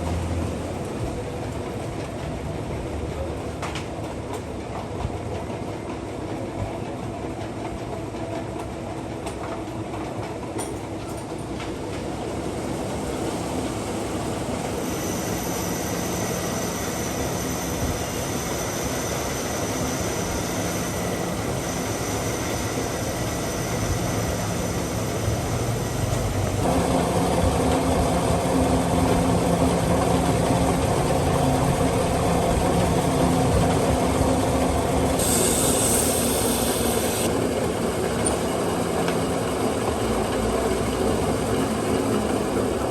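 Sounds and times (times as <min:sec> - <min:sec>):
metal lathe running: 0:13.7 - 0:42.9
high thin whine: 0:14.7 - 0:37.3.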